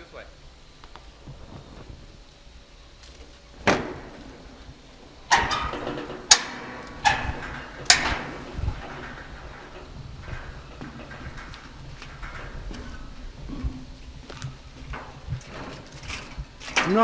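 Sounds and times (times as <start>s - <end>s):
footsteps on scaffolding: 5.2s - 17.0s.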